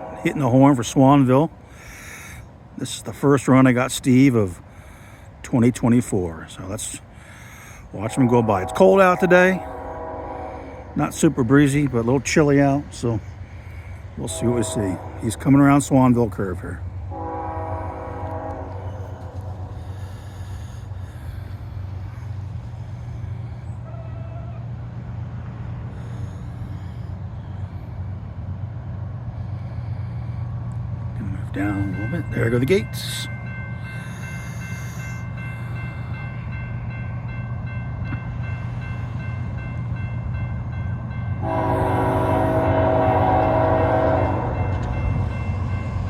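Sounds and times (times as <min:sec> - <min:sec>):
train horn chord: 0:00.0 - 0:01.0, 0:08.0 - 0:11.6, 0:14.2 - 0:15.8, 0:17.1 - 0:20.0, 0:41.4 - 0:46.0
diesel locomotive rumble: 0:00.0 - 0:46.0
crossing signal ringing: 0:08.0 - 0:11.8, 0:31.3 - 0:46.0.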